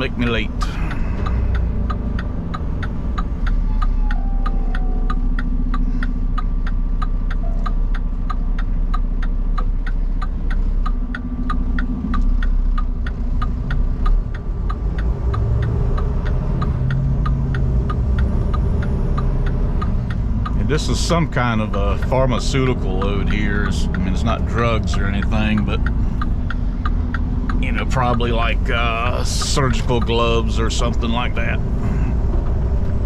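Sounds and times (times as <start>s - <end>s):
diesel engine running: 0.0s - 33.0s
turn signal ticking: 0.0s - 33.0s.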